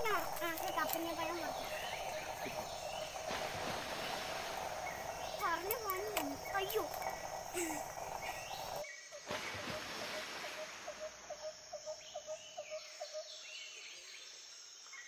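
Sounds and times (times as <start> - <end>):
bird calling rising notes: 0.0 - 8.8
faint outdoor background noise: 0.0 - 15.0.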